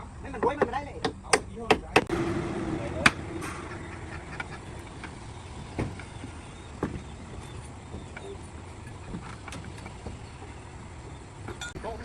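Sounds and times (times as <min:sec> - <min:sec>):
building site rumble: 0:02.1 - 0:09.1.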